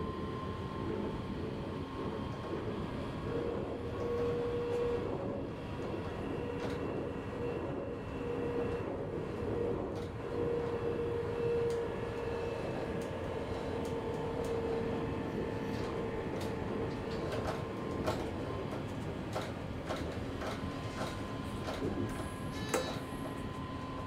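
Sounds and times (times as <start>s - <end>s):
train low rumble: 0.0s - 24.0s.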